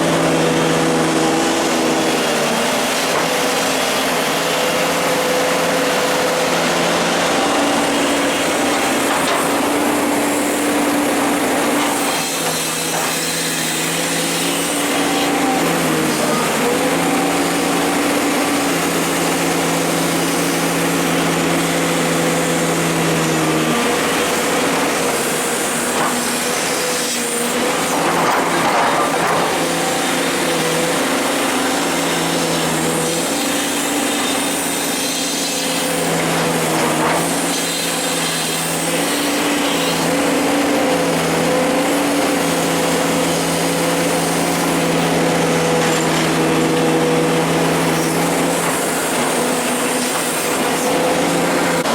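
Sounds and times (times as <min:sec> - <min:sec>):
excavator diesel engine under load: 0:00.0 - 0:51.9.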